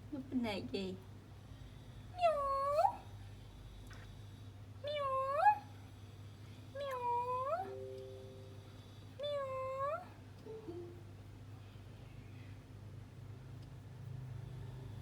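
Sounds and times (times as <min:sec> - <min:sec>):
faint steady tone: 0:05.1 - 0:15.0.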